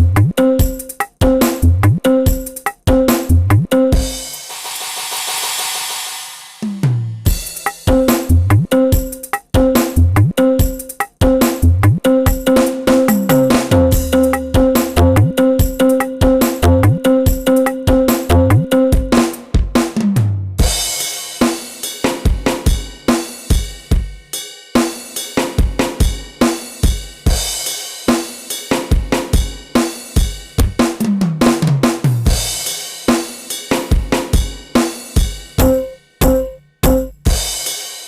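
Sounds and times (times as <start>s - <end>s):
drum kit beat: 0.0s - 38.0s
falling tom fill: 12.4s - 17.0s, 35.6s - 37.4s.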